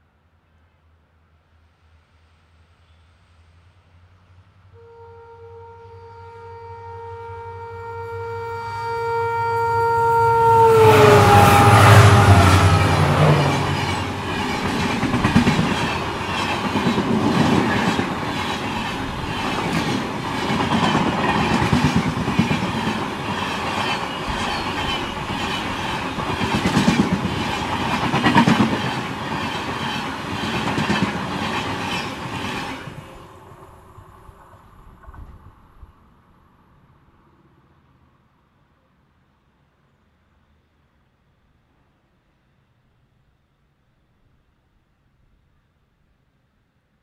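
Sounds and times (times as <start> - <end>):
locomotive horn: 4.7 - 14.7
train coaches rushing past: 9.6 - 36.0
wheels clacking over rail joints: 11.2 - 33.2.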